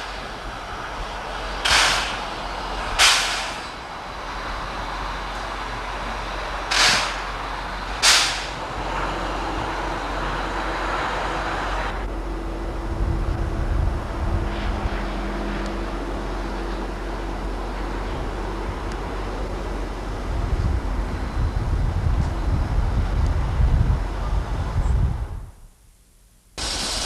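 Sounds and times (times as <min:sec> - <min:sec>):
locomotive rumble: 0:00.0 - 0:25.6, 0:26.6 - 0:27.0
steam hissing bursts: 0:01.6 - 0:03.8, 0:06.7 - 0:07.4, 0:08.0 - 0:08.7, 0:26.6 - 0:27.0.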